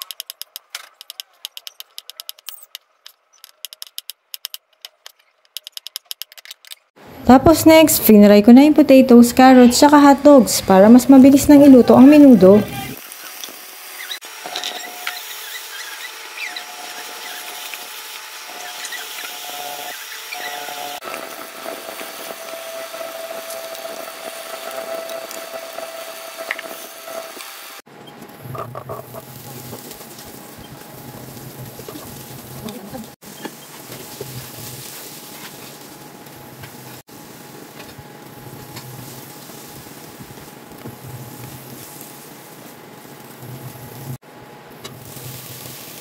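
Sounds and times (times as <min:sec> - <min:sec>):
vegetables sizzling in oil: 0:11.0 - 0:28.4, 0:29.0 - 0:46.0.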